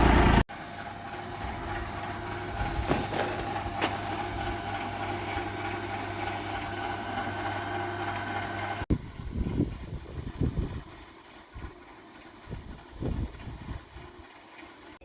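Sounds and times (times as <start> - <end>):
small motor running: 0.0 - 15.0.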